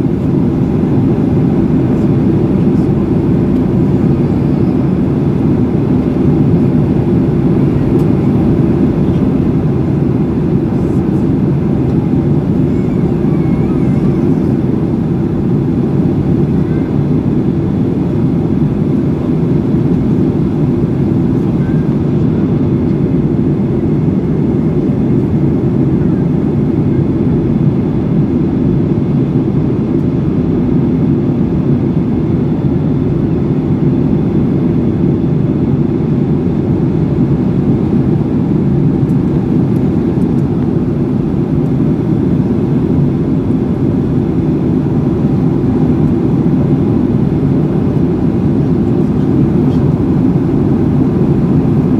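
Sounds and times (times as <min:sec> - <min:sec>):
airplane engines droning: 0:00.0 - 0:51.9.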